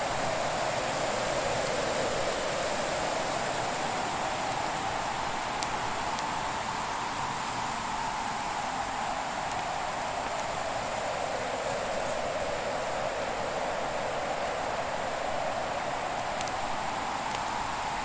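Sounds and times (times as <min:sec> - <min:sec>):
fire crackles: 0:13.0 - 0:18.0.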